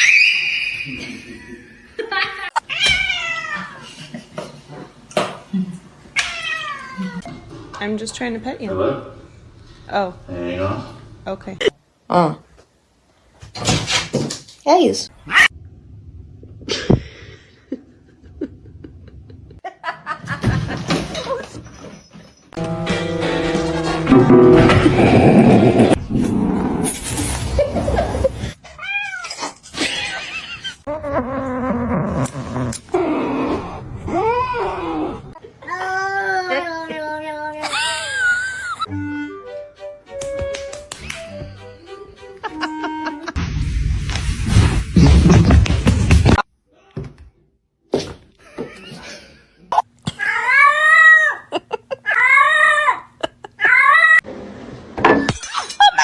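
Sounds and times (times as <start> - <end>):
cat yowling and meowing: 2.6 - 3.8, 6.2 - 7.2, 28.7 - 29.4
cat meowing: 28.7 - 29.4.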